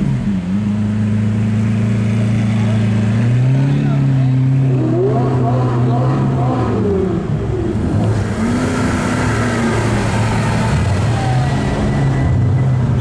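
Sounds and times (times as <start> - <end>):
sports car engines revving: 0.0 - 13.0.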